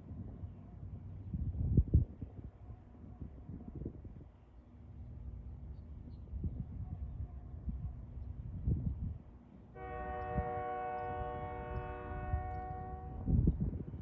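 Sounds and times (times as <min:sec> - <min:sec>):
diesel locomotive horn: 0:09.7 - 0:13.6.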